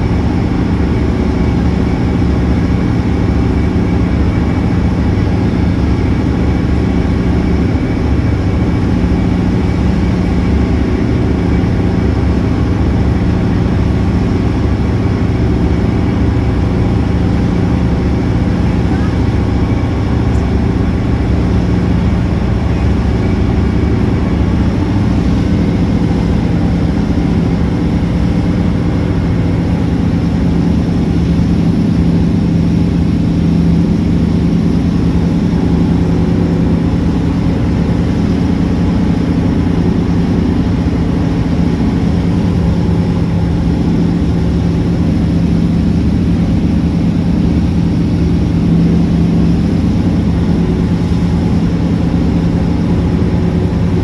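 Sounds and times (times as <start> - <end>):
steady engine drone: 0.0 - 54.0.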